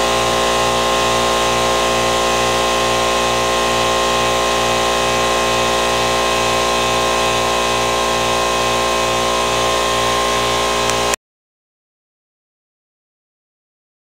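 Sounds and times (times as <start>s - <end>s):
motor running with low throb: 0.0s - 11.2s.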